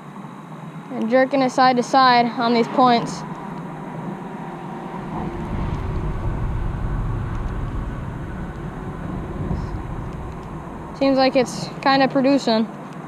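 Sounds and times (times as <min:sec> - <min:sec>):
low uneven rumbling: 0:02.1 - 0:12.5.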